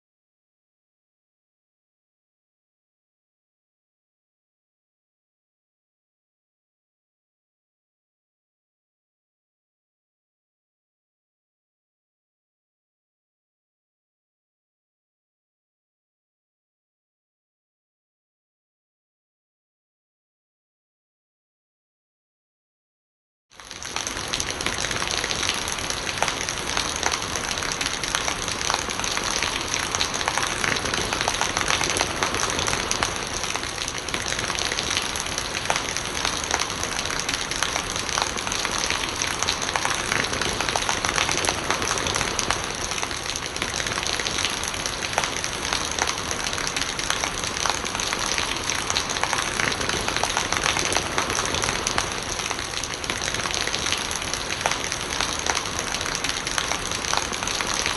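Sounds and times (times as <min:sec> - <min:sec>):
rain on hard surfaces: 0:23.5 - 0:57.9
rainwater gurgling: 0:23.6 - 0:57.9.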